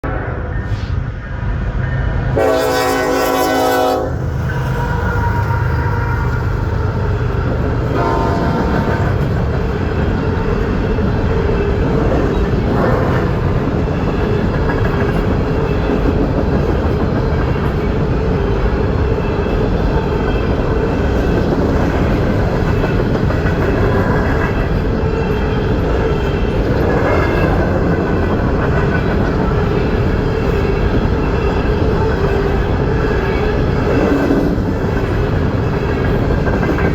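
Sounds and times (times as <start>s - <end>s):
train rumble on rails: 0.0s - 36.9s
train air horn: 2.3s - 7.1s, 7.9s - 9.0s.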